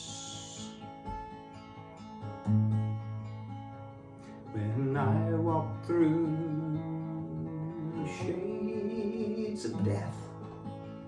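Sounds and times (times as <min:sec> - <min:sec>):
strummed acoustic guitar: 0:00.0 - 0:11.0
person singing a hymn: 0:04.5 - 0:10.2.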